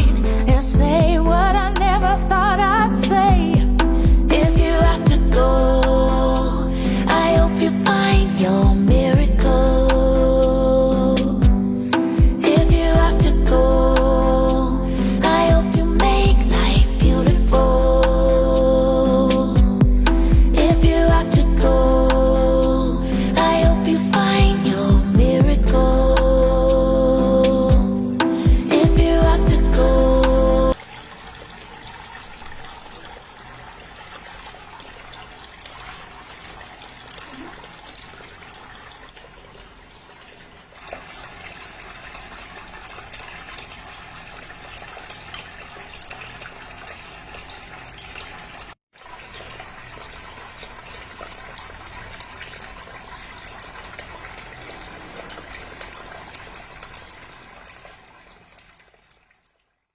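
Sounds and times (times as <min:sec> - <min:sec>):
fountain water falling: 0:30.7 - 0:59.2.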